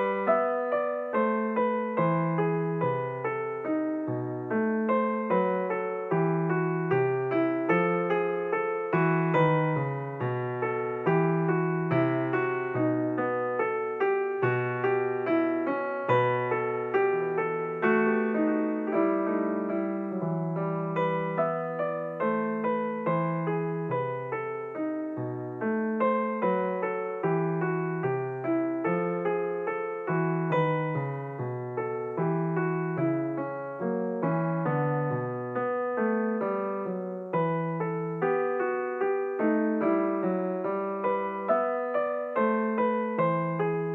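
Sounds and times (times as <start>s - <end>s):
slow piano music: 0.0s - 43.9s.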